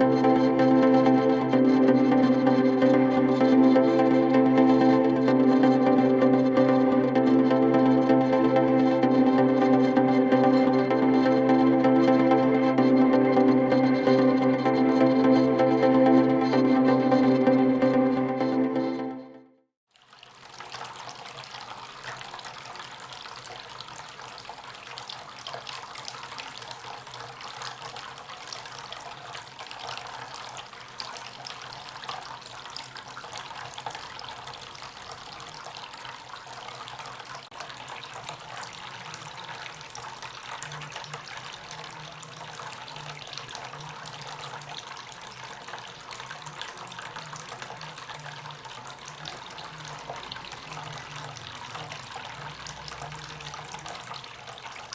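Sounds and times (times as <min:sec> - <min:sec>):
fountain water trickling: 0:19.9 - 0:54.9.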